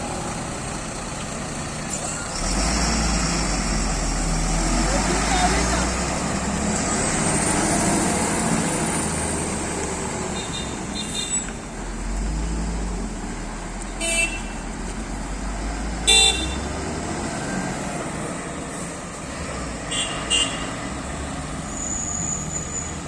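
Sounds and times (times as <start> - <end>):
truck engines rumbling: 0.0 - 23.0
horn toots: 16.1 - 16.7.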